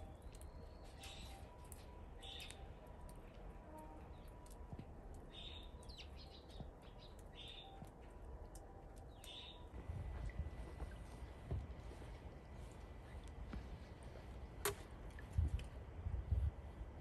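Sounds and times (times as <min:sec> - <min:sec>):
steady low rumble: 0:08.0 - 0:17.0.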